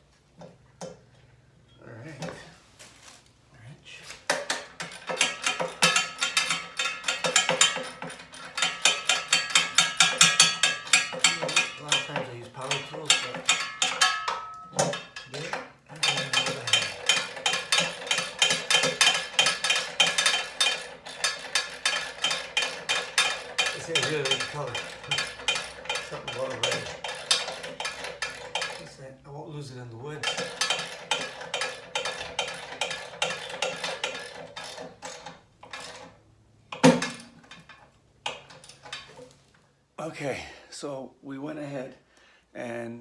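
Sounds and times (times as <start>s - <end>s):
metallic clicking of hand tools: 4.3s - 29.0s, 30.2s - 39.2s
sharp metallic clinks: 4.7s - 29.0s.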